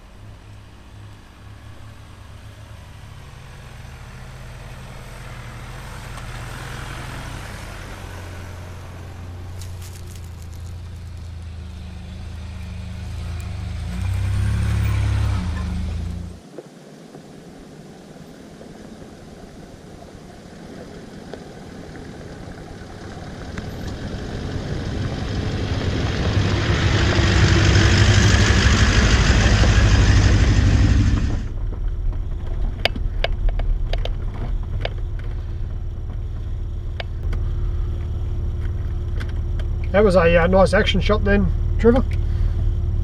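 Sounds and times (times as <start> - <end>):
vehicle driving past: 0.0 - 16.4, 20.4 - 32.4
low engine hum: 0.0 - 16.5, 17.4 - 43.0
sharp clicks and rattles: 31.1 - 40.0.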